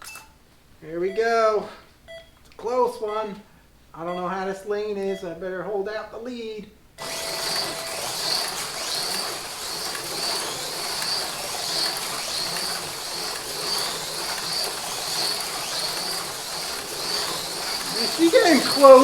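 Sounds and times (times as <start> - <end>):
slot car motors buzzing: 7.0 - 19.0.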